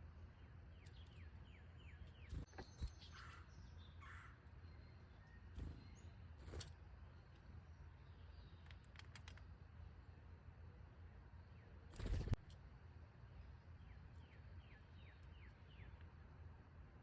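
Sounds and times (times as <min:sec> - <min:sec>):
wild birds calling: 0:02.1 - 0:04.4
sharp clicks: 0:08.6 - 0:09.5.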